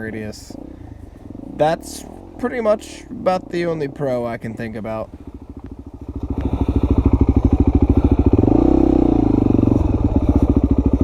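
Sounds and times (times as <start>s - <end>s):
dirt bike engine revving: 0.0s - 4.5s, 5.2s - 11.0s.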